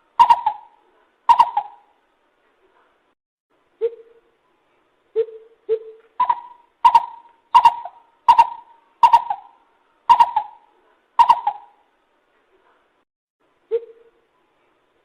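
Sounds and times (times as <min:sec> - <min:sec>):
bird hooting notes: 0:00.0 - 0:01.9, 0:05.2 - 0:11.8.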